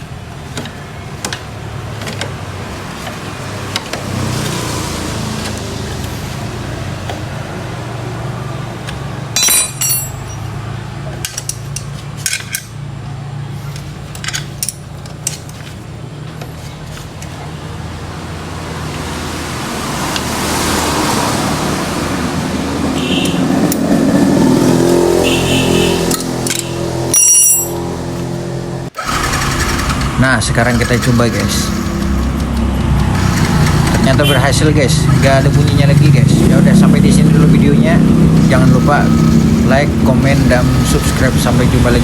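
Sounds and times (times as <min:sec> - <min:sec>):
wrench and bolts clinking: 0:09.4 - 0:10.5, 0:11.2 - 0:12.8, 0:13.7 - 0:15.6, 0:26.1 - 0:27.8
broad rushing noise: 0:28.2 - 0:42.0.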